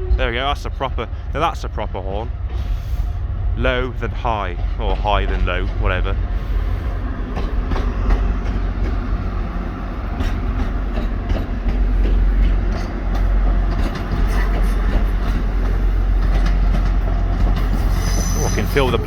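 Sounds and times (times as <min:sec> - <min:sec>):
diesel train rumbling past: 0:00.0 - 0:19.0
wheels clicking over rail joints: 0:07.3 - 0:19.0.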